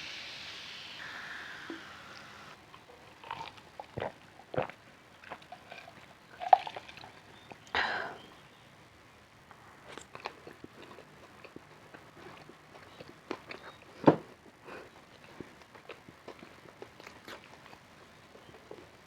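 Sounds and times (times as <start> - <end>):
noisy burst: 0.0 - 2.6
person chewing with crunches: 2.7 - 7.6, 9.8 - 19.0.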